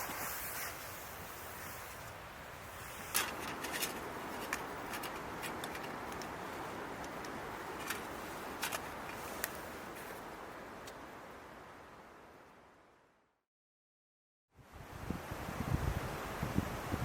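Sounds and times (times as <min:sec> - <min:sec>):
wood fire crackling: 0:00.0 - 0:10.4
steady hiss: 0:00.0 - 0:12.4.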